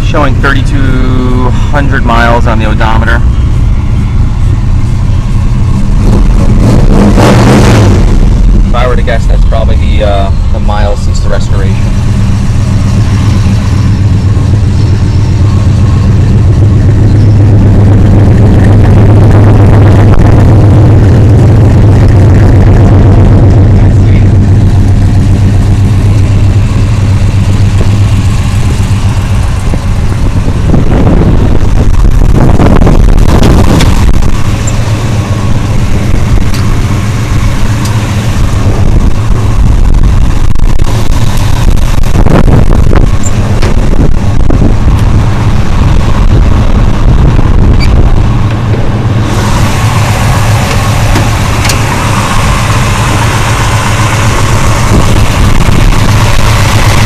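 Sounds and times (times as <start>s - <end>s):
car engine idling and revving: 0.0s - 57.0s.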